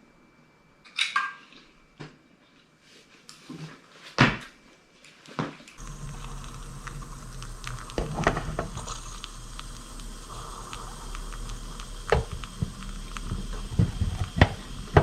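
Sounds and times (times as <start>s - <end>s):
low hum and hiss of brewing: 0.0s - 15.0s
espresso maker knocking and clattering: 7.7s - 9.2s, 10.3s - 15.0s.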